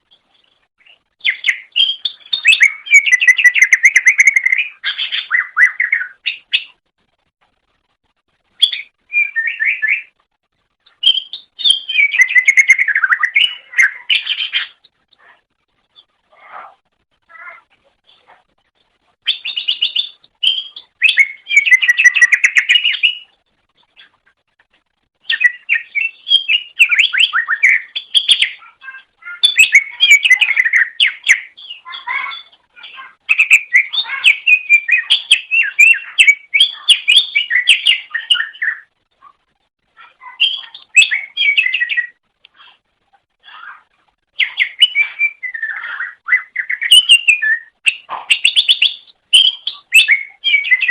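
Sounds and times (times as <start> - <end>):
bird singing chirps and whistles: 0.8 - 6.8, 8.6 - 10.2, 10.9 - 14.8, 19.2 - 23.4, 25.2 - 38.9, 40.1 - 42.2, 44.4 - 50.9.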